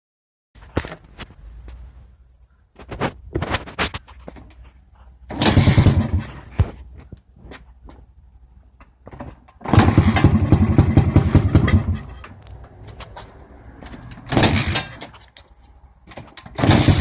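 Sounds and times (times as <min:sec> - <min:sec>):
motorcycle engine being kick-started: 0:05.3 - 0:06.6, 0:09.1 - 0:15.4, 0:16.1 - 0:17.0.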